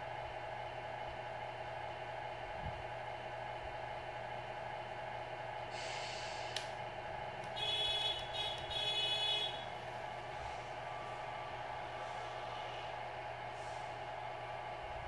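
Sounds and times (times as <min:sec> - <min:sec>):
short hiss and click: 0:05.8 - 0:06.8.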